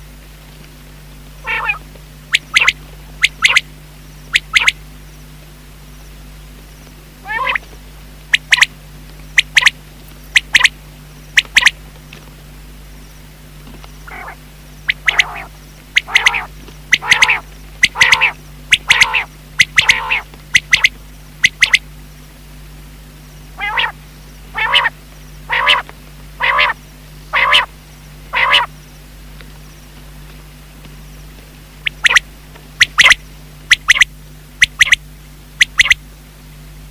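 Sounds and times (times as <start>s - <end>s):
low steady hum: 0.0s - 36.9s
quail calling: 1.4s - 3.7s, 4.3s - 4.8s, 7.2s - 7.7s, 8.3s - 8.7s, 9.4s - 10.7s, 11.4s - 11.8s, 14.0s - 21.8s, 23.6s - 27.7s, 28.3s - 28.8s, 31.8s - 32.2s, 32.8s - 35.0s, 35.6s - 36.0s.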